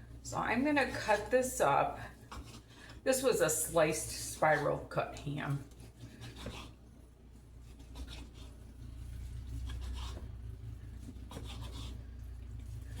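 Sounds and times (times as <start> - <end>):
steady low hum: 0.0 - 13.0
knife scraping on cutting board: 0.8 - 1.4, 2.2 - 3.3, 5.7 - 6.8, 7.6 - 10.4, 11.0 - 12.3.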